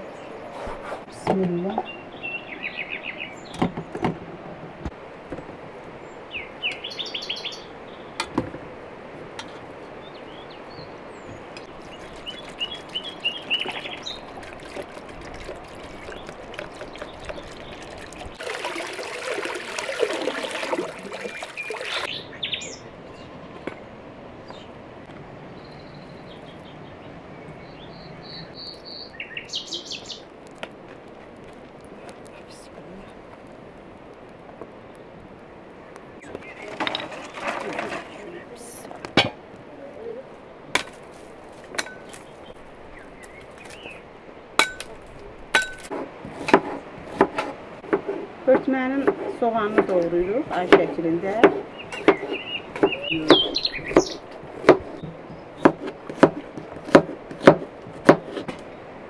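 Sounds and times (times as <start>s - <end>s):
small birds chirping: 0.0s - 3.9s, 5.4s - 8.2s, 10.0s - 18.4s, 21.0s - 24.8s, 25.5s - 30.3s, 36.0s - 37.0s, 42.0s - 44.0s, 49.4s - 55.8s
rushing splashing noise: 11.7s - 22.2s.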